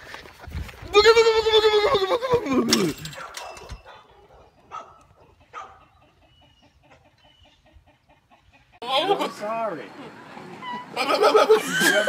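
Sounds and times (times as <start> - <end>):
goat bleating: 0.8 - 2.8.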